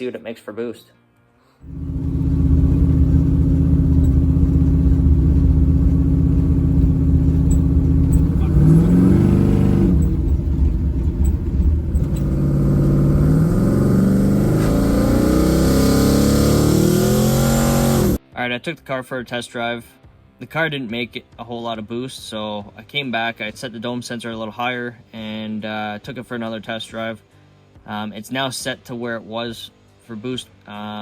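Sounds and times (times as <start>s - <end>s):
drag car engine revving: 1.7s - 18.2s.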